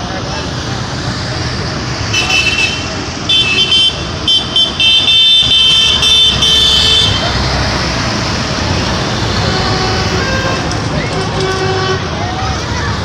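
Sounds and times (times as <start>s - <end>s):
tractor engines rumbling: 0.0s - 13.0s
tractor horns tooting: 2.1s - 7.9s, 8.5s - 13.0s.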